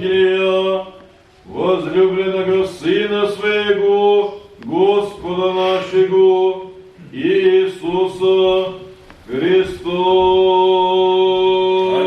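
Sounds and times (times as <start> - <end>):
man chanting on a reciting tone: 0.0 - 12.0.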